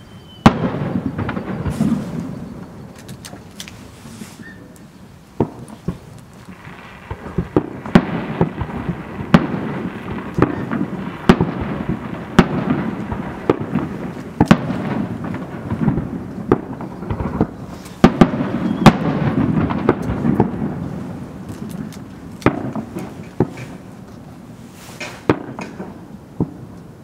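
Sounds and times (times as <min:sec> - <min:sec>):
firework shells bursting: 0:00.4 - 0:26.6
rolling rumble of echoes: 0:05.3 - 0:24.5.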